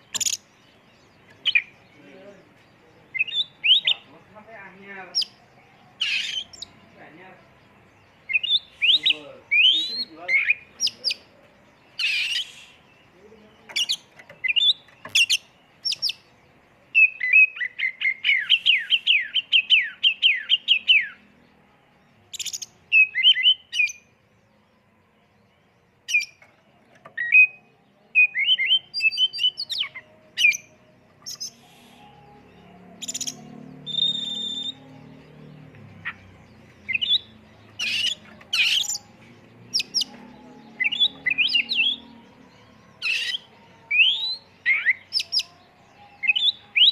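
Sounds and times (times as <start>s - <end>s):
bird singing whistles and chips: 12.0s - 12.9s, 13.8s - 16.2s, 17.0s - 21.2s, 33.0s - 34.8s, 36.8s - 39.1s, 43.0s - 45.5s.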